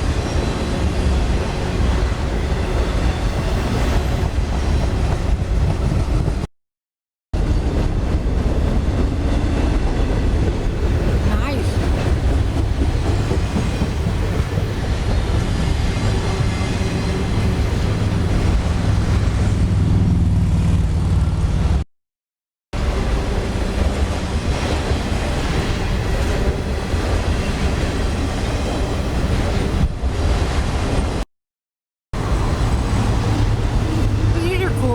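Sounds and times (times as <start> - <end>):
freight train wheels rumbling: 0.0 - 6.5, 7.4 - 21.8, 32.2 - 34.9.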